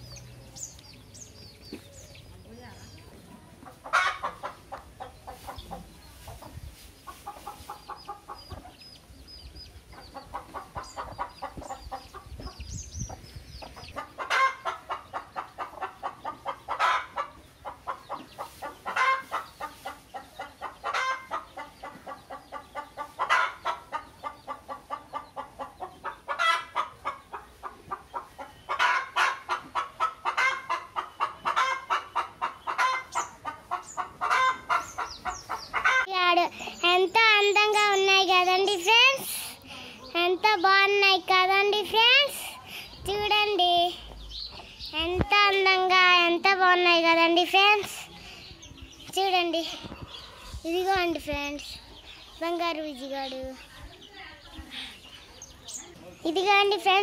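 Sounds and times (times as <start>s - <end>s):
bird calls: 7.0s - 40.8s, 42.5s - 46.8s, 47.5s - 57.0s.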